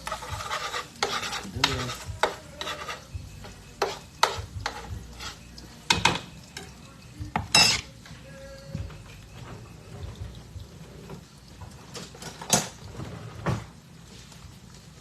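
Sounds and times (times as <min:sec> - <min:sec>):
utensil scraping a skillet: 0:00.0 - 0:08.1
frying sizzle: 0:00.0 - 0:15.0.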